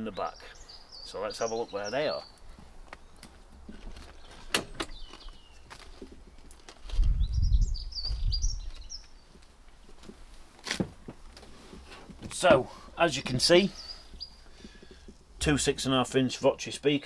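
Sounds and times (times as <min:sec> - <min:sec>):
low rumble on microphone: 0:06.9 - 0:08.8
small bird chirping: 0:07.0 - 0:09.4.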